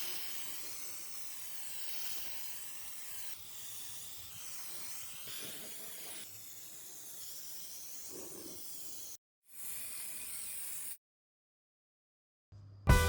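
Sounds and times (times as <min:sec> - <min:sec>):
air spraying hiss: 0:00.0 - 0:09.1.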